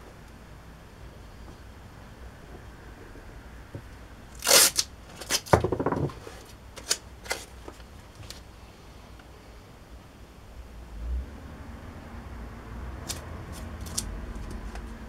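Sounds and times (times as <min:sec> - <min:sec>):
masking tape pulled off roll: 0:04.3 - 0:05.5, 0:13.0 - 0:14.8.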